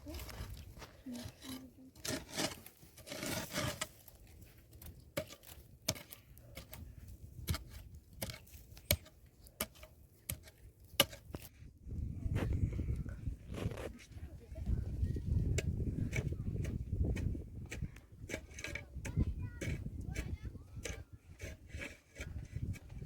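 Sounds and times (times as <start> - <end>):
rustling and scraping: 0.0 - 11.6, 12.3 - 19.0.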